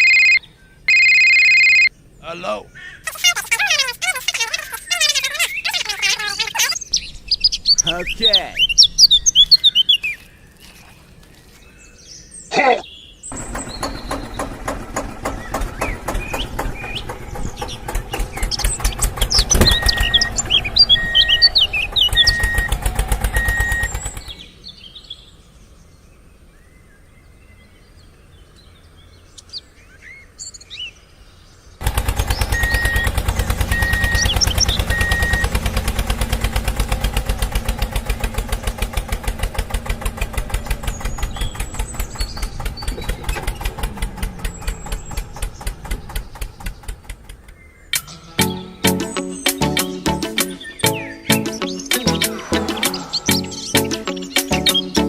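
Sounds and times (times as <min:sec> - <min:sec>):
birds chirping: 0:00.0 - 0:55.0
small tractor engine chugging: 0:13.3 - 0:24.5, 0:31.8 - 0:47.8.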